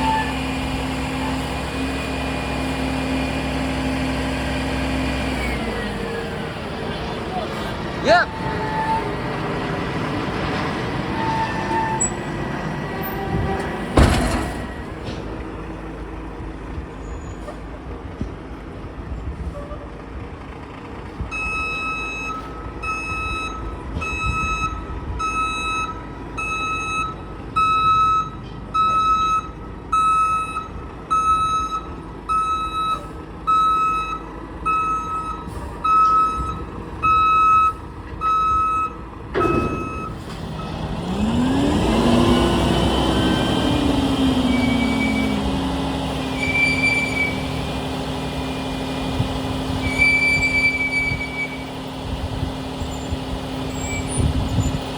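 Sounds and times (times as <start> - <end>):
truck engine running: 0.0 - 22.9, 30.8 - 54.9
truck reversing alarm beeping: 21.3 - 52.0.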